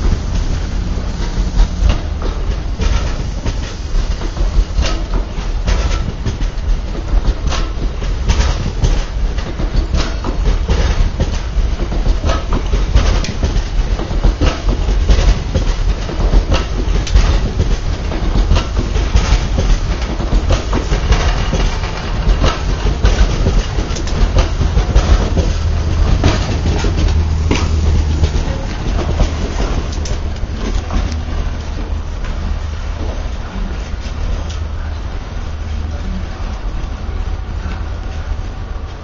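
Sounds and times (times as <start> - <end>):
heavy train rumble: 0.0 - 39.0
train wheels clattering over joints: 0.0 - 39.0.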